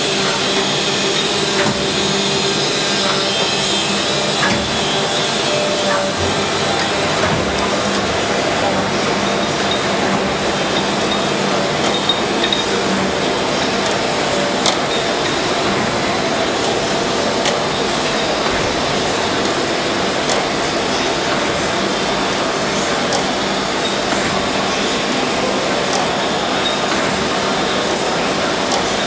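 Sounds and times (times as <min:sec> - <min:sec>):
surface grinder humming: 0:00.0 - 0:20.0.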